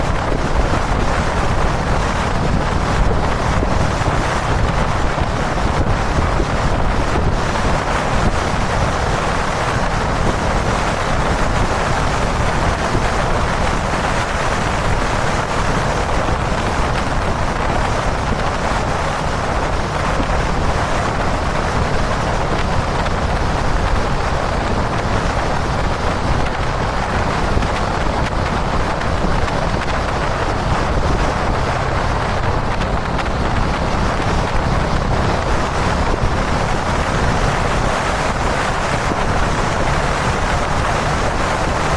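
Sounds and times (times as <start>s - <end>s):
motorcycle running and road noise: 0.0s - 41.9s
wind rush over microphone: 0.0s - 41.9s.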